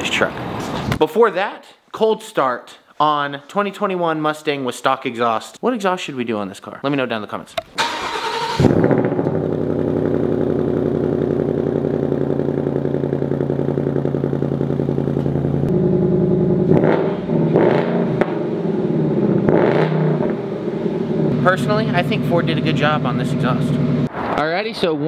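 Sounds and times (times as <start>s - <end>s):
car engine starting and idling: 7.6s - 24.1s.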